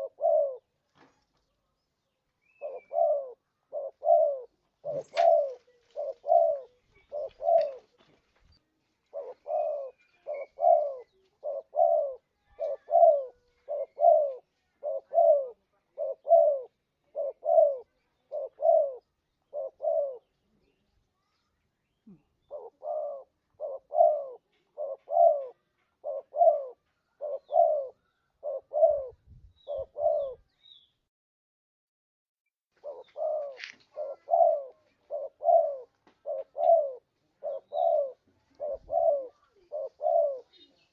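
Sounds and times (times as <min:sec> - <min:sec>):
dove cooing: 0:00.0 - 0:00.8, 0:02.4 - 0:08.1, 0:09.0 - 0:20.8, 0:22.0 - 0:30.5, 0:32.8 - 0:40.9.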